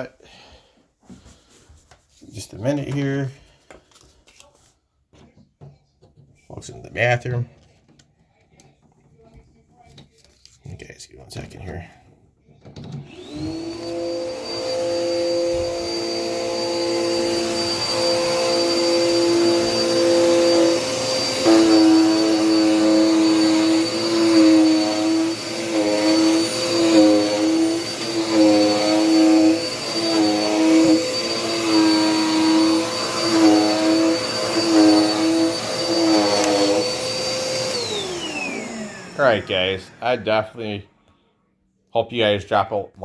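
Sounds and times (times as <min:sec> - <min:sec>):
vacuum cleaner motor whining: 0:12.8 - 0:40.7.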